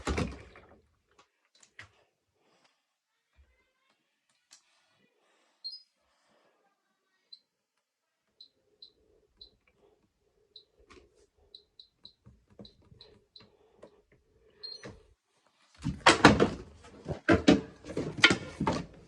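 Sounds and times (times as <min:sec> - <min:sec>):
faint high chirps: 0:05.6 - 0:06.0, 0:07.0 - 0:07.6, 0:08.4 - 0:09.6, 0:14.5 - 0:14.9.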